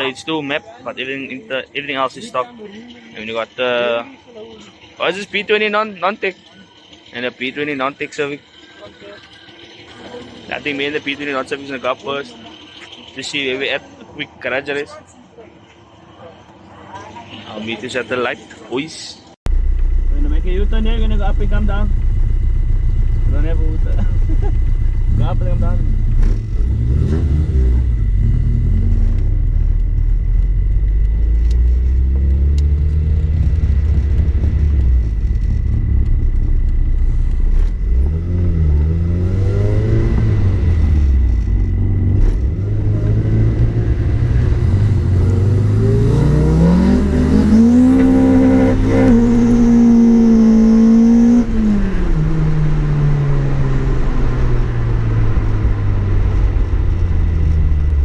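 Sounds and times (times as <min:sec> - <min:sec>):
car engine accelerating: 0:19.5 - 0:58.0.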